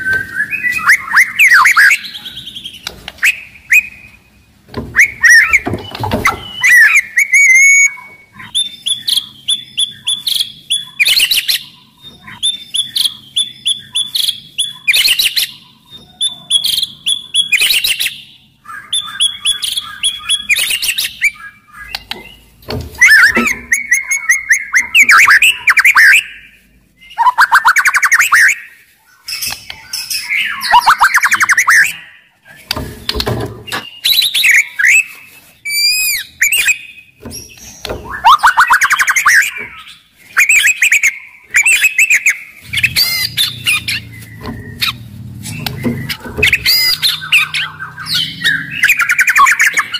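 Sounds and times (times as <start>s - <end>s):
songbird singing varied phrases: 0.0s - 35.1s, 35.7s - 49.9s.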